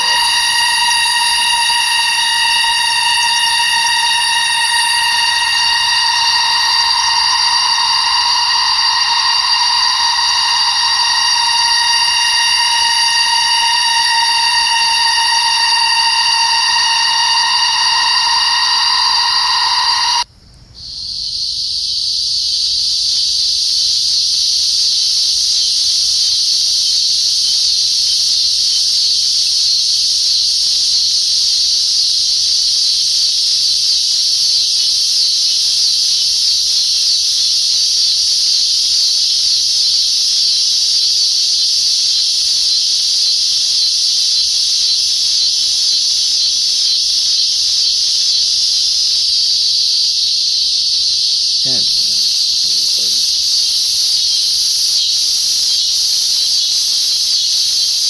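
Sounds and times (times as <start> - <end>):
cicada buzzing: 0.0 - 20.2, 51.2 - 58.0.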